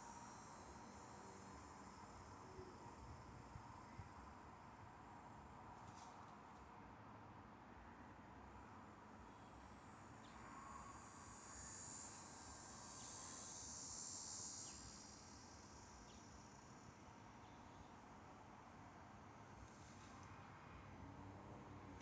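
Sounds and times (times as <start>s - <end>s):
thin steady high whine: 7.4s - 20.3s.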